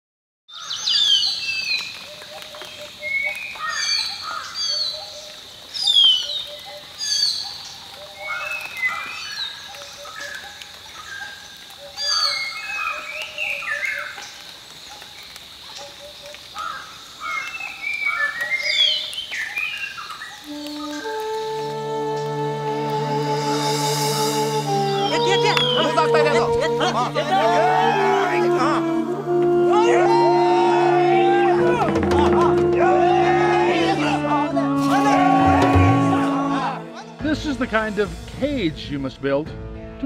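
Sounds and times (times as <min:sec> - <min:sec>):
birds chirping and whistling: 0:00.5 - 0:10.4, 0:11.8 - 0:14.3, 0:17.3 - 0:22.4, 0:23.9 - 0:34.1.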